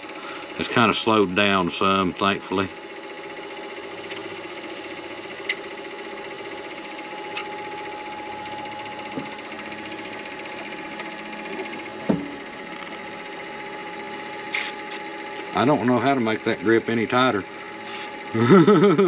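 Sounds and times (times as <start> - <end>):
lathe motor hum: 0.0 - 19.0
loud knock: 12.0 - 12.4.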